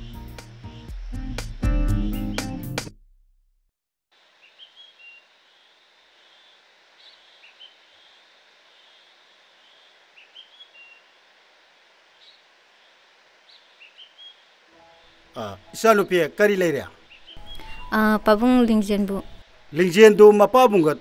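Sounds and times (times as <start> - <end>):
music: 0.0 - 3.0, 14.7 - 20.4
birds chirping: 1.9 - 2.7, 4.4 - 11.3, 12.1 - 20.4.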